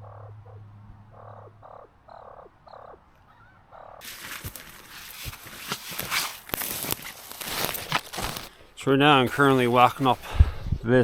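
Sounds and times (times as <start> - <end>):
grouse clucking: 0.0 - 4.1
footsteps: 4.0 - 8.5, 9.2 - 10.3
rustling: 4.0 - 10.4.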